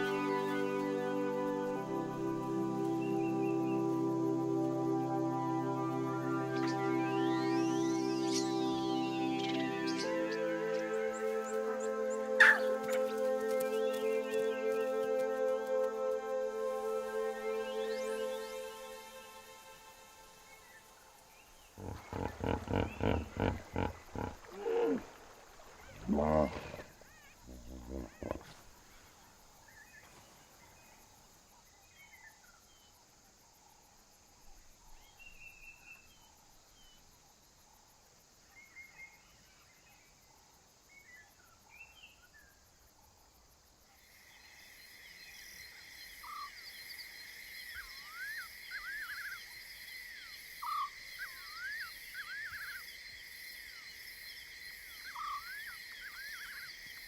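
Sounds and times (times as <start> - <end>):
high-pitched insect chorus: 0.0 - 57.0
sweeping bird calls: 5.5 - 15.4, 21.4 - 28.6, 44.1 - 57.0
faint bird chirps: 21.4 - 31.0, 43.9 - 57.0
lion cub call: 21.8 - 25.1, 25.9 - 28.6.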